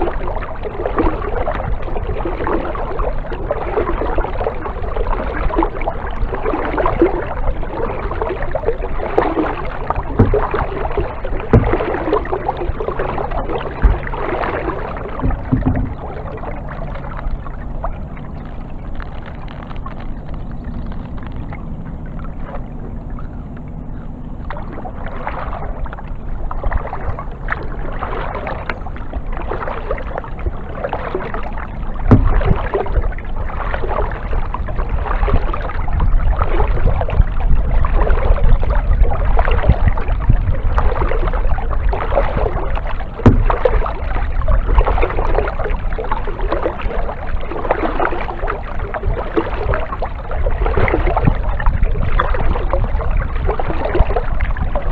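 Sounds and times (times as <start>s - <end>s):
low rumble: 0.0s - 54.9s
paddle splashing water: 0.0s - 54.9s
sharp knocks: 15.2s - 16.1s.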